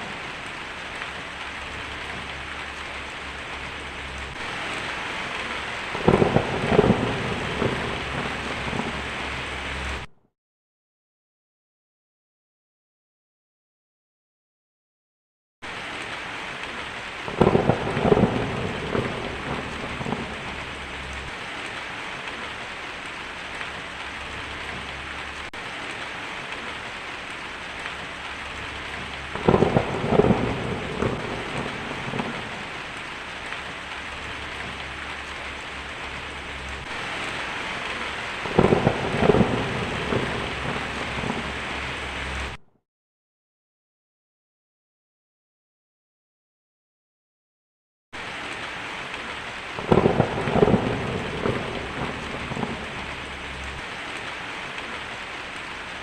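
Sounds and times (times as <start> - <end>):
heavy rain: 0.0 - 10.1, 15.6 - 42.6, 48.2 - 56.0
thunder cracking and rumbling: 0.0 - 10.1, 16.6 - 42.6, 49.7 - 55.2.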